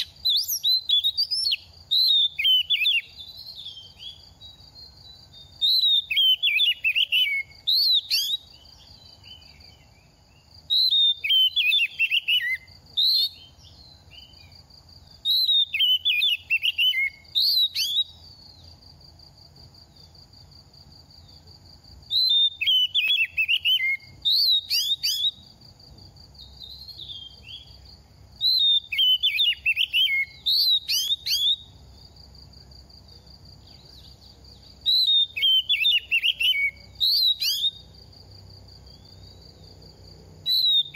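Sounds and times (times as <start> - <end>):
bird singing whistled phrases: 0.0 - 9.9, 10.7 - 14.6, 15.2 - 18.5, 22.1 - 25.4, 26.4 - 27.8, 28.4 - 31.8, 34.8 - 37.9, 40.4 - 40.9.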